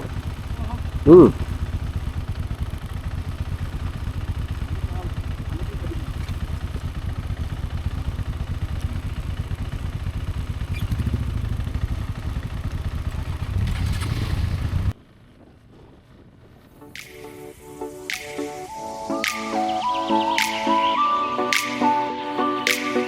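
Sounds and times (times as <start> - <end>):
motorcycle engine running: 0.0 - 17.2.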